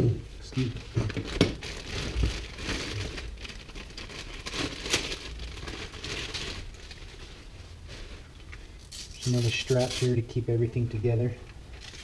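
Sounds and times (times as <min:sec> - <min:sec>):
packaging crinkling: 0:00.6 - 0:07.5, 0:11.7 - 0:12.0.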